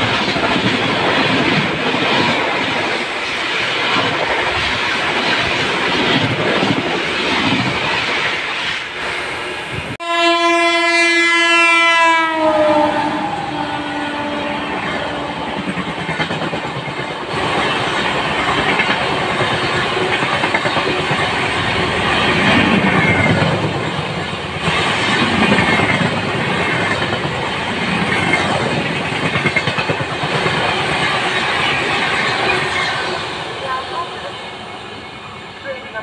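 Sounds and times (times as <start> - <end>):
train rumbling: 0.0 - 36.0.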